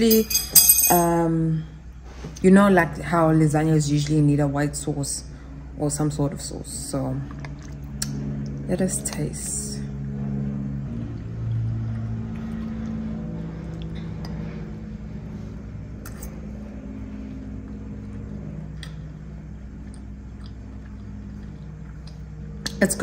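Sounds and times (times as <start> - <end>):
person chewing food: 19.7 - 22.7.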